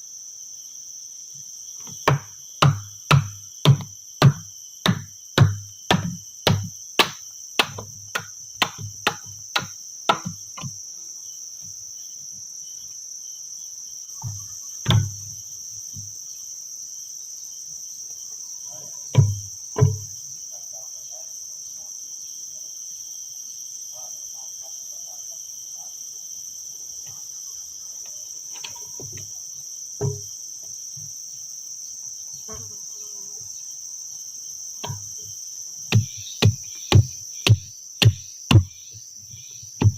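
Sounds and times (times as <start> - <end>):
insects chirring: 0.0 - 39.9
dull knocks: 1.8 - 10.7, 14.2 - 15.2, 19.1 - 20.1, 30.0 - 30.3, 35.9 - 38.8.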